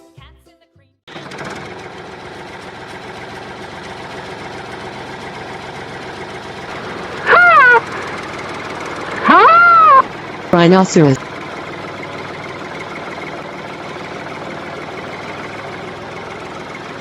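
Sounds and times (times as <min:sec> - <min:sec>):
tractor engine running: 0:01.1 - 0:17.0
loud rising and falling call: 0:06.9 - 0:10.2.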